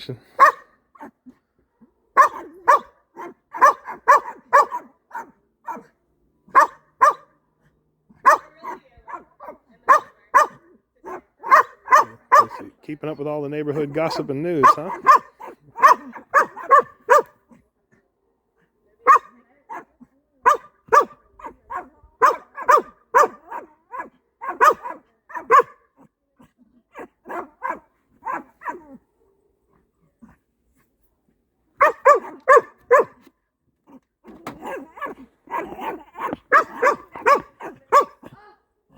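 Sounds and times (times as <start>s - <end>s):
dogs barking: 0.3s - 1.2s, 2.2s - 5.9s, 6.5s - 7.4s, 8.2s - 12.8s, 13.6s - 17.4s, 19.0s - 25.9s, 26.9s - 29.0s, 31.8s - 33.3s, 34.5s - 38.3s.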